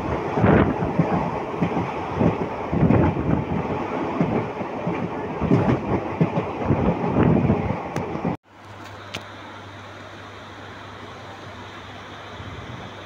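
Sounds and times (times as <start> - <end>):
train wheels rumbling on rails: 0.0 - 9.4.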